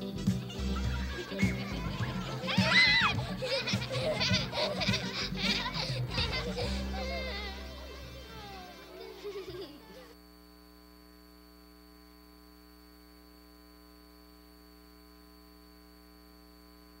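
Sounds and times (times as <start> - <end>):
theme music: 0.0 - 9.4
faint mains hum: 0.0 - 17.0.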